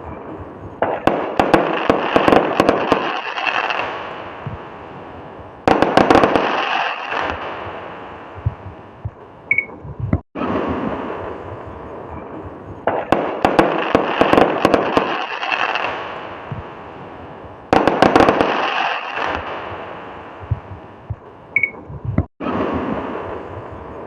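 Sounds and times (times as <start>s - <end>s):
fireworks crackling pops: 0.0s - 4.9s, 5.6s - 9.3s, 10.4s - 16.8s, 17.7s - 21.3s
fireworks fizz: 0.9s - 8.7s, 12.8s - 17.1s, 17.7s - 20.7s.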